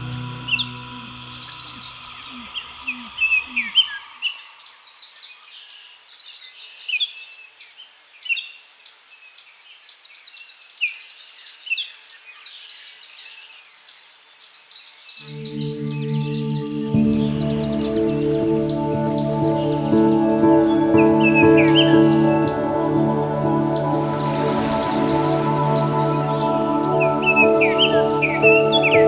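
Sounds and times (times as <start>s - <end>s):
soft music: 0.0s - 4.2s, 15.2s - 29.0s.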